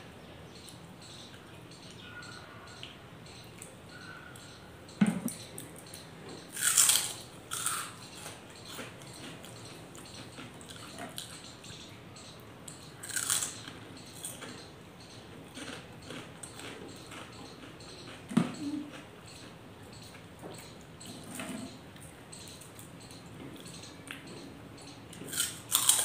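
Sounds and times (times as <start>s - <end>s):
chewing with lip smacks: 15.5s - 19.6s.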